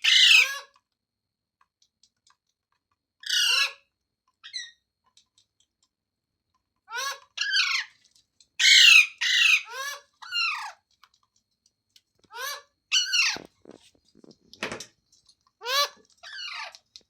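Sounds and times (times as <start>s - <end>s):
parrot squawking harshly: 0.0s - 0.7s, 3.2s - 3.8s, 6.9s - 7.9s, 8.6s - 10.8s, 12.3s - 13.4s, 15.6s - 16.8s.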